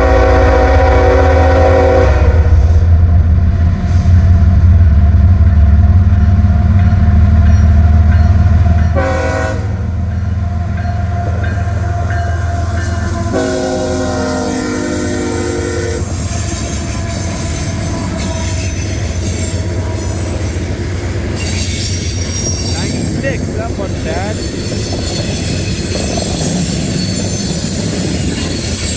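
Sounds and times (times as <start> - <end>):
train air horn chord: 0.0 - 2.8, 8.9 - 10.0, 11.1 - 20.7
diesel locomotive engines rumbling: 0.0 - 28.9
train wheels clattering: 16.0 - 28.9
thin wheel squeal: 21.4 - 23.4, 24.0 - 28.9.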